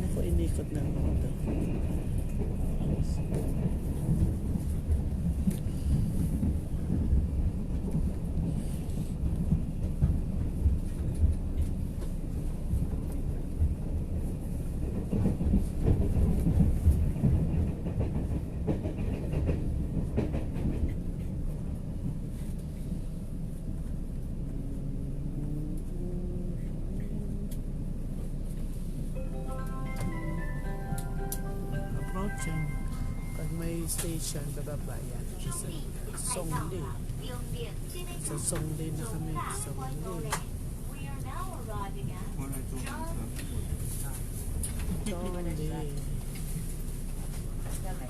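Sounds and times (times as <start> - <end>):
train rumble from inside carriage: 0.0 - 48.0.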